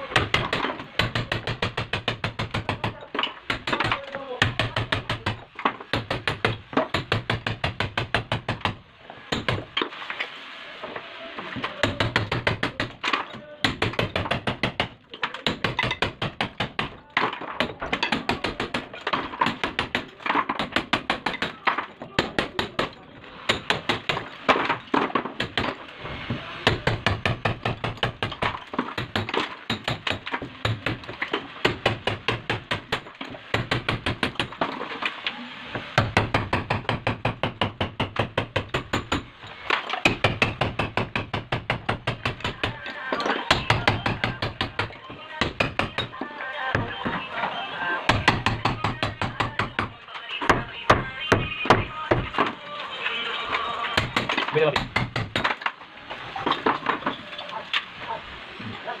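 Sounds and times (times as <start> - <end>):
hammer striking chisel: 0.1 - 9.8, 11.8 - 25.8, 26.6 - 34.8, 36.0 - 46.9, 48.1 - 49.9, 54.0 - 55.7.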